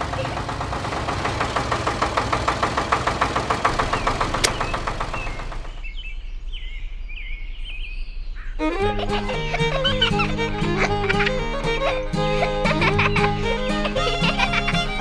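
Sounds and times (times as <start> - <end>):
small diesel engine idling: 0.0 - 5.7
birds chirping: 3.9 - 15.0.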